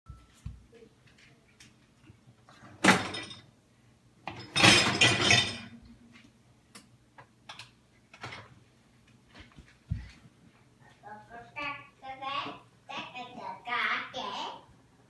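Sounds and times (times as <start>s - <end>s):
dishes clattering in dishwasher rack: 2.7s - 3.5s, 4.3s - 5.8s.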